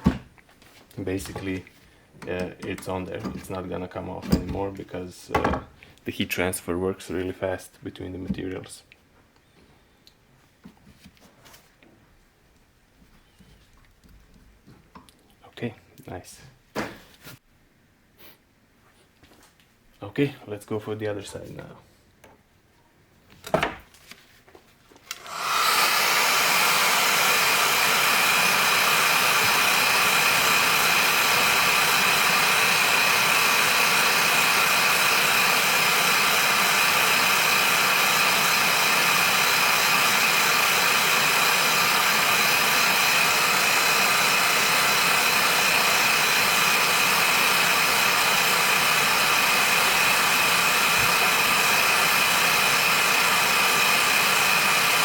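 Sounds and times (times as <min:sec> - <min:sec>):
heat gun blowing with whine: 0:25.0 - 0:55.0.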